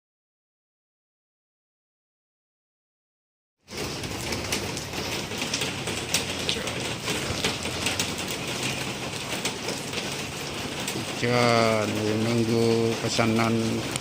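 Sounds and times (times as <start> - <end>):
raindrops ticking on hard surface: 3.7 - 14.0
steady rain falling: 3.7 - 14.0.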